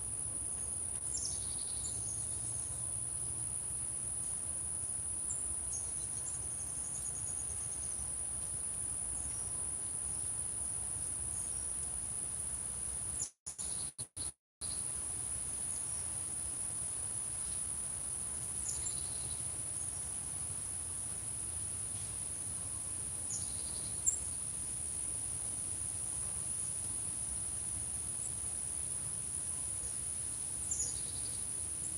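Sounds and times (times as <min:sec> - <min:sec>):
crickets chirping: 0:00.0 - 0:13.8, 0:14.6 - 0:31.9
faint bird chirps: 0:13.2 - 0:14.9, 0:18.6 - 0:20.0.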